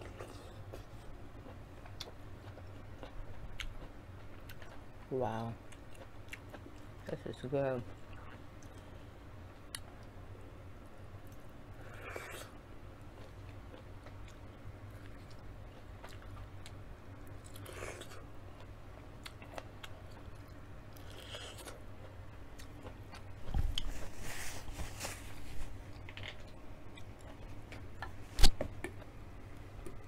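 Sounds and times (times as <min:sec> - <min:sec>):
crunchy chewing of corn: 0:00.0 - 0:07.2, 0:11.8 - 0:24.1.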